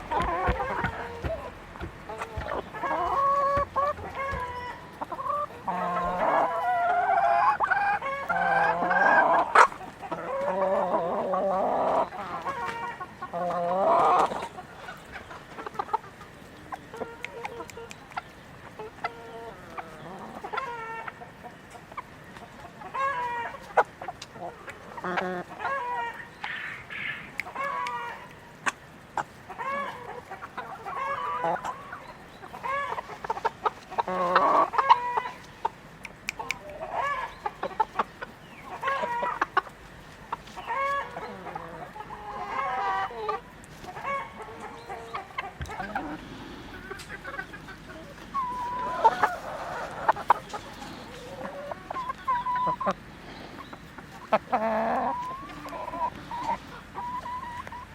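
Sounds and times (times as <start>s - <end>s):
chickens clucking: 0.0s - 57.9s
light clicks of pecking: 16.9s - 18.4s, 35.3s - 38.4s.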